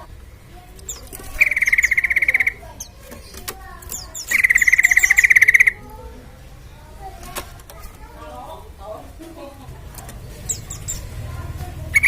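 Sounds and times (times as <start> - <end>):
faint high bird chirps: 0.0 - 6.9, 10.2 - 11.2
bird rattling trills: 0.7 - 6.0, 9.9 - 12.0.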